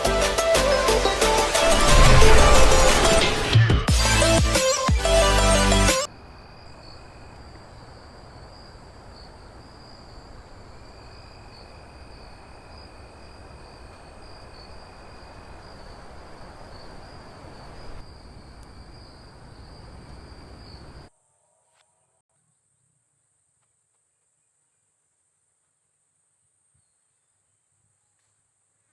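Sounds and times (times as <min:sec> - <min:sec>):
burst of music: 0:00.0 - 0:06.1
even rushing noise: 0:01.2 - 0:04.5
insects droning: 0:04.1 - 0:21.9.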